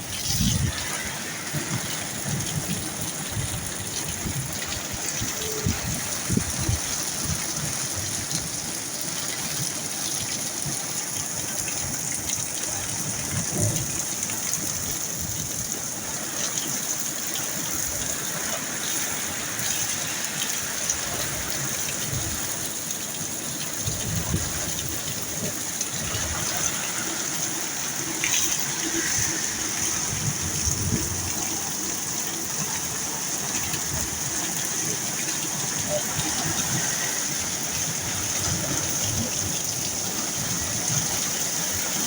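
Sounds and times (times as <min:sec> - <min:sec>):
heavy rain hissing: 0:00.0 - 0:42.0
water gushing: 0:00.0 - 0:42.0.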